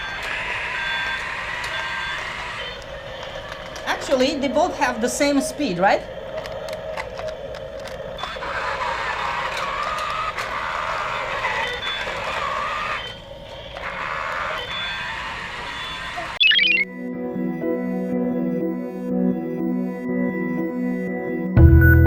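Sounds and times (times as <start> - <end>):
toy electric motors whining: 0.0 - 16.8.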